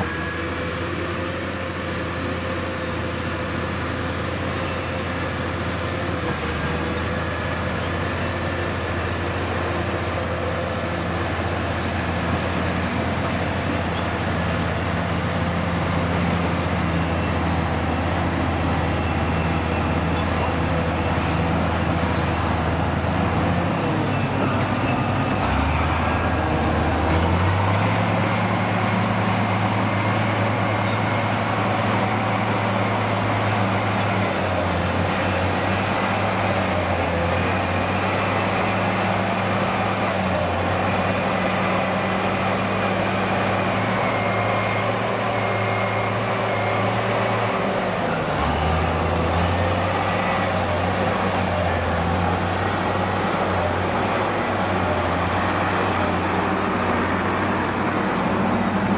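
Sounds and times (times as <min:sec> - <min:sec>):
heavy diesel engine running: 0:00.0 - 0:58.9.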